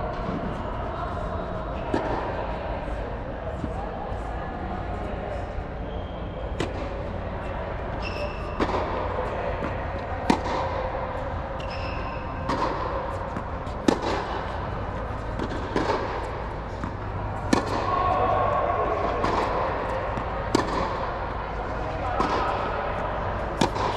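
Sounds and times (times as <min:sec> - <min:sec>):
steady low hum: 0:00.0 - 0:23.9
tennis balls struck with rackets: 0:01.5 - 0:03.0, 0:06.5 - 0:23.9.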